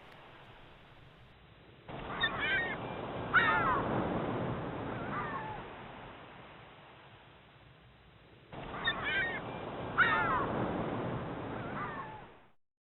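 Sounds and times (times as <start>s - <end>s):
ocean waves washing ashore: 0.0s - 12.6s
birds squawking: 10.0s - 10.5s.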